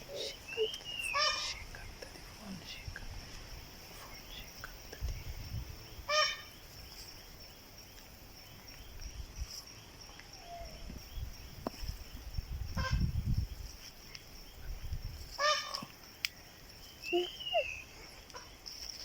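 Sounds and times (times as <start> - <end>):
peacock calling: 0.0 - 1.8, 6.1 - 6.5, 15.4 - 15.9, 17.0 - 18.5.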